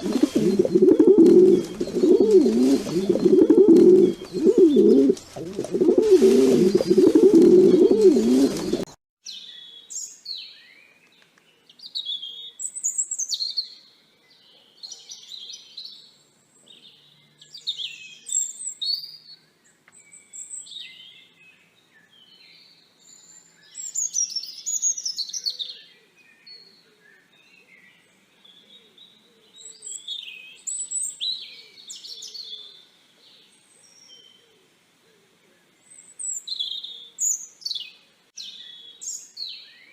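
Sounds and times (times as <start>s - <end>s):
pigeon cooing: 0.0s - 8.9s
songbird chirping and warbling: 0.0s - 39.9s.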